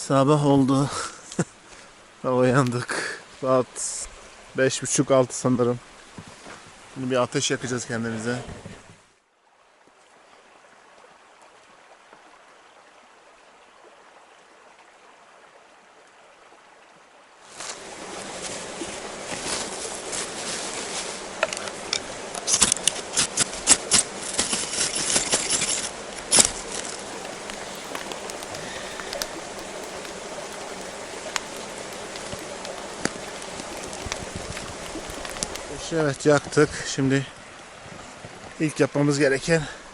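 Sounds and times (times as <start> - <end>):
campfire rushing: 26.7 - 36.2
kindling crackling and snapping: 26.8 - 36.1
faint hiss: 26.8 - 36.4.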